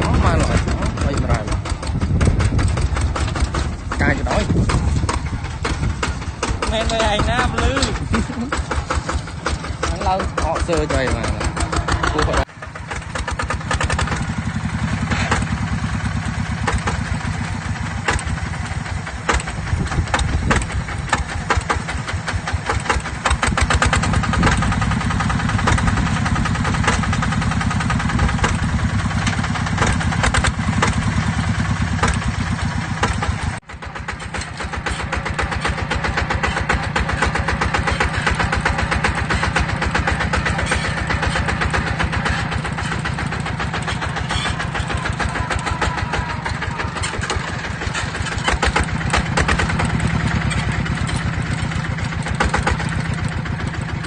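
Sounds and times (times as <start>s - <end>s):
diesel engine puttering: 0.0s - 54.0s.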